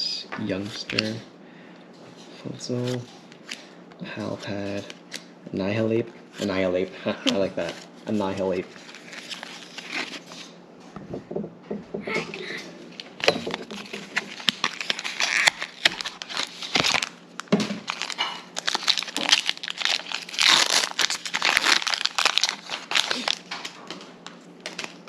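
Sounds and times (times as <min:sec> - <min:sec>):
foil wrapper crinkling and tearing: 0:08.3 - 0:10.5, 0:13.5 - 0:23.8, 0:24.6 - 0:25.0.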